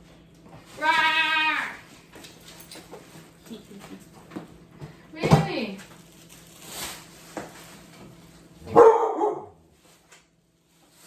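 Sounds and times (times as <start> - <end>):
dog barking: 8.6 - 9.6.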